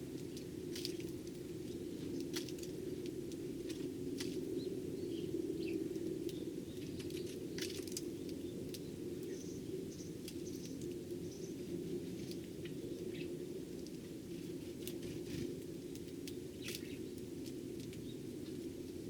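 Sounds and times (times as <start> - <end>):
sparrows chirping: 4.5 - 13.4, 16.2 - 17.3, 17.9 - 18.6.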